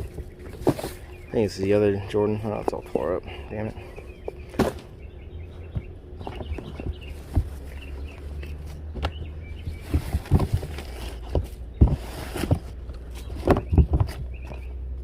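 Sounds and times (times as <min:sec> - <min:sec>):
rustling: 0:00.0 - 0:01.3, 0:06.2 - 0:14.6
shoes knocking when dropped: 0:04.2 - 0:04.9.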